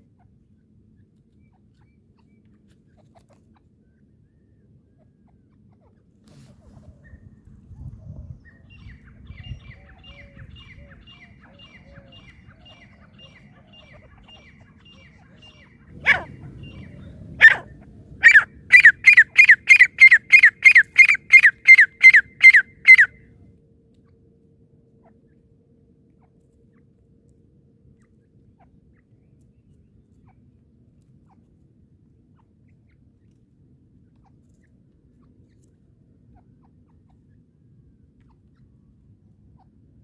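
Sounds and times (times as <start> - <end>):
francolin calling: 8.7 - 23.2.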